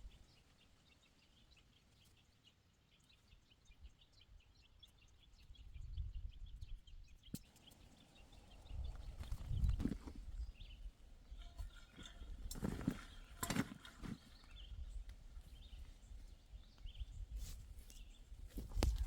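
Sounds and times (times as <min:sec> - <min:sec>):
stones knocking together: 0:11.9 - 0:14.2.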